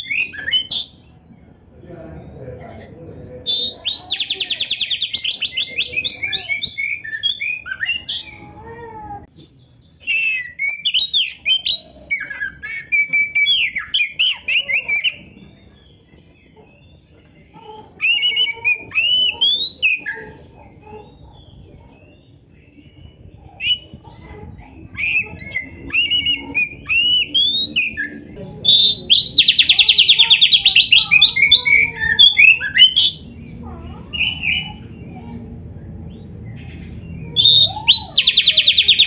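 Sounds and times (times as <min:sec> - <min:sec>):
bird singing varied song: 0:00.0 - 0:39.0.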